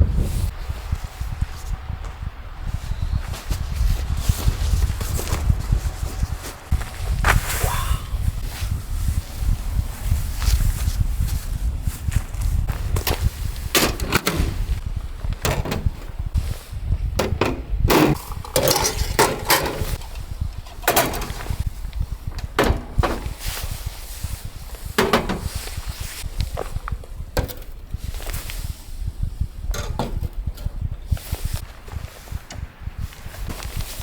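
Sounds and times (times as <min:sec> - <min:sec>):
wind buffeting microphone: 0:00.0 - 0:34.0
irregular knocks and clatters: 0:25.0 - 0:25.8.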